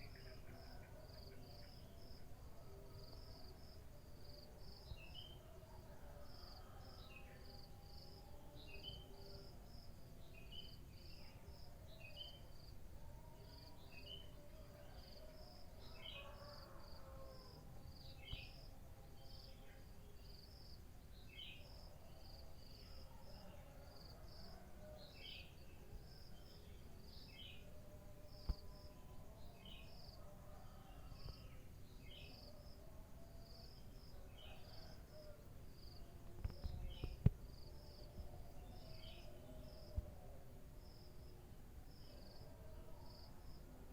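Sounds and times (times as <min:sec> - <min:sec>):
crickets chirping: 0:00.0 - 0:43.9.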